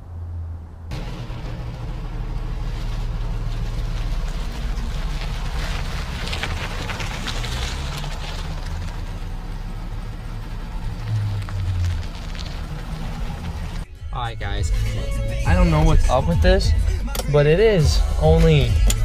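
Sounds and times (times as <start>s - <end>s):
air and tyre rushing: 0.0s - 13.9s
car engine and road rumble: 0.0s - 19.0s.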